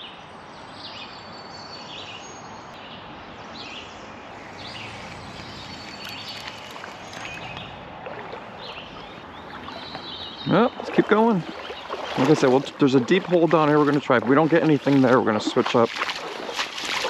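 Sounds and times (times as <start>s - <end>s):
birds chirping: 0.6s - 17.0s
creek water running: 4.0s - 17.0s.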